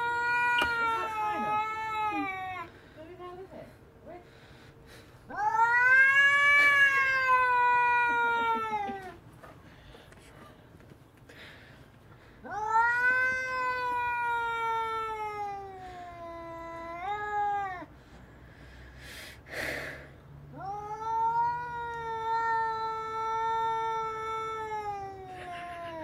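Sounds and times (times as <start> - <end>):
cat yowling: 0.0 - 2.7, 5.3 - 9.2, 12.4 - 17.9, 20.5 - 26.0.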